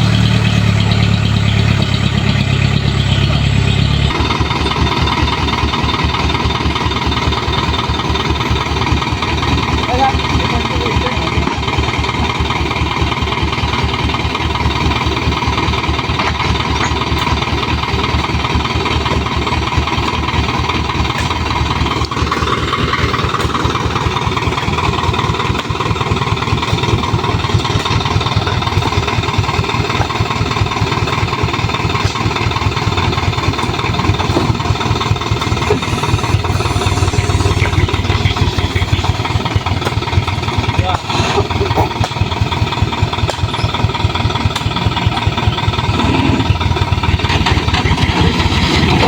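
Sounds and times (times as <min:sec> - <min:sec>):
diesel truck engine idling: 0:00.0 - 0:49.0.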